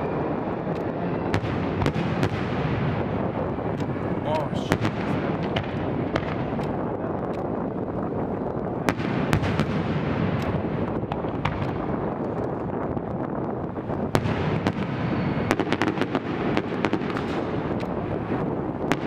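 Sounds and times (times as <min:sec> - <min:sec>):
fireworks sharp reports: 0:00.0 - 0:19.0
crackling firework pops: 0:03.6 - 0:04.0, 0:04.6 - 0:07.7, 0:08.8 - 0:19.0.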